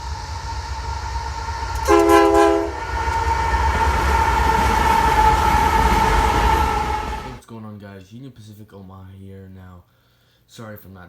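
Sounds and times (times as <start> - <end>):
held high tone: 0.0 - 7.4
locomotive horn blast: 0.0 - 7.4
steady rumble: 0.0 - 7.4.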